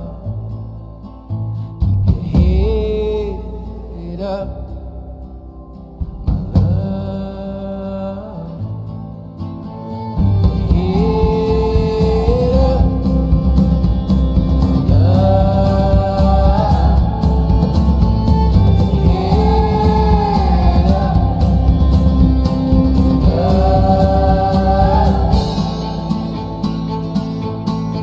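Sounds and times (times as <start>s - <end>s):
background song music: 9.6s - 28.0s.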